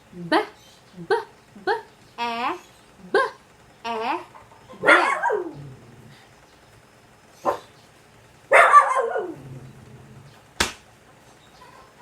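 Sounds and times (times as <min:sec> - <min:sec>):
dog barking: 0:04.8 - 0:05.6, 0:07.4 - 0:07.7, 0:08.5 - 0:09.4.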